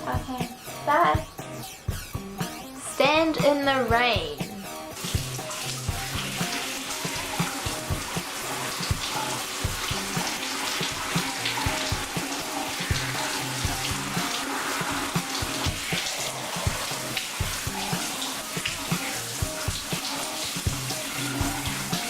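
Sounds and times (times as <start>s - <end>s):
background music with a beat: 0.0s - 22.0s
rain falling and splashing: 4.8s - 22.0s.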